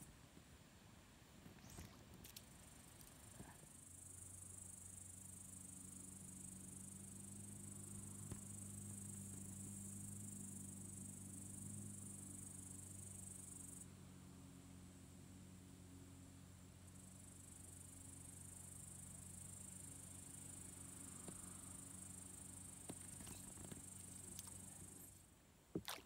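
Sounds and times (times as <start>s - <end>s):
low steady hum: 0.0s - 26.0s
insects chirring: 1.6s - 13.9s, 16.9s - 25.2s.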